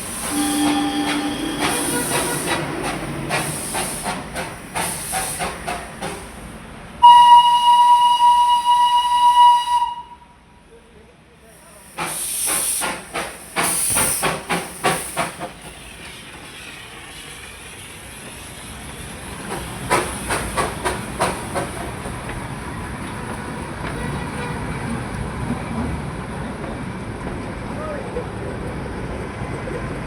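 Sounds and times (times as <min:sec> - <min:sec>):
steam hissing: 0:00.0 - 0:09.8, 0:11.4 - 0:24.9
steam locomotive chuffing: 0:00.0 - 0:10.0, 0:11.4 - 0:25.6.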